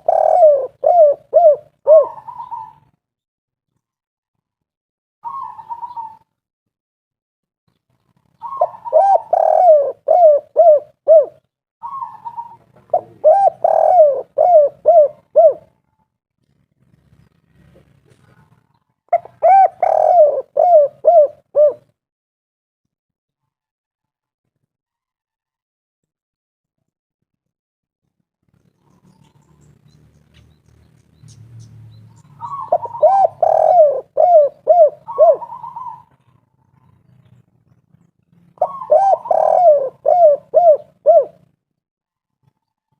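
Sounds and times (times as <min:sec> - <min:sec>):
dove cooing: 0:00.0 - 0:03.0, 0:05.2 - 0:06.3, 0:08.4 - 0:15.8, 0:17.7 - 0:21.9, 0:32.2 - 0:37.1, 0:38.5 - 0:41.6.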